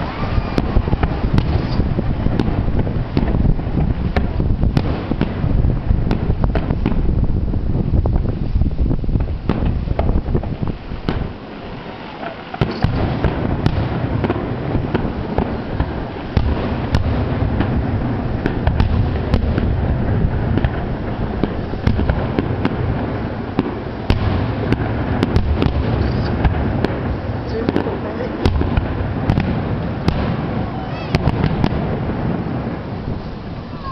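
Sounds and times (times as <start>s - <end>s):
fireworks bursting and crackling: 0.0s - 33.9s.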